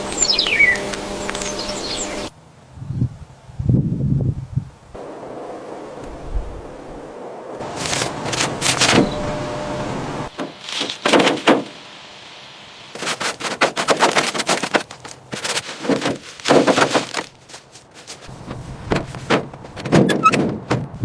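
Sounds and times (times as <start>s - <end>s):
rapid sharp knocks: 10.4s - 11.8s, 13.0s - 17.5s.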